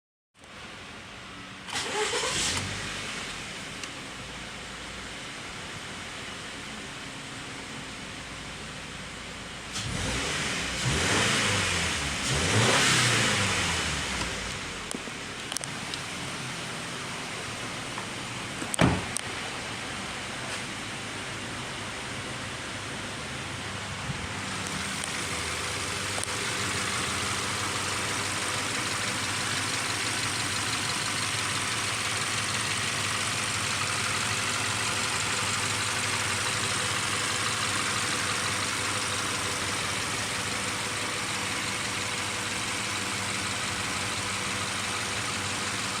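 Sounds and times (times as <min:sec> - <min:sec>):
car engine idling: 0:13.2 - 0:46.0.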